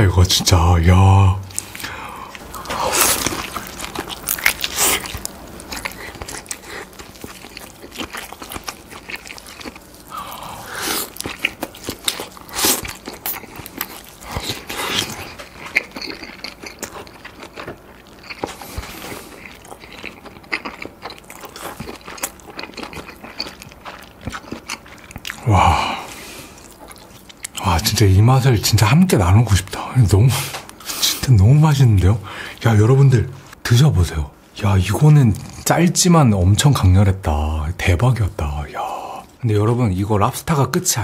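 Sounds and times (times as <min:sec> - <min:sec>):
close biting and chewing: 0:01.5 - 0:27.6.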